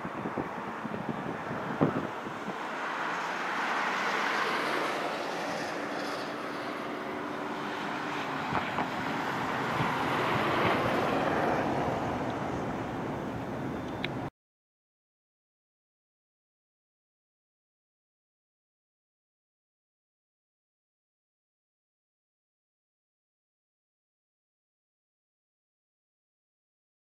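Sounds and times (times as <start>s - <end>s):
diesel locomotives passing: 0.0s - 14.3s.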